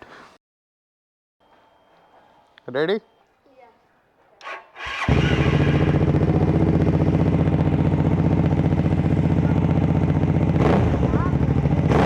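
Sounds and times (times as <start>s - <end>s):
motorcycle engine idling: 4.5s - 12.0s.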